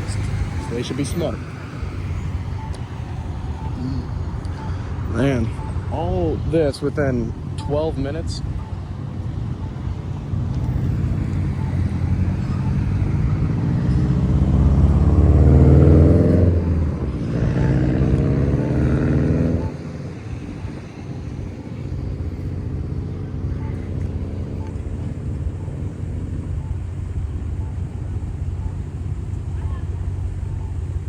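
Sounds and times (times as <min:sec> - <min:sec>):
vehicle driving past: 0:00.0 - 0:29.4
road traffic hum: 0:00.0 - 0:31.0.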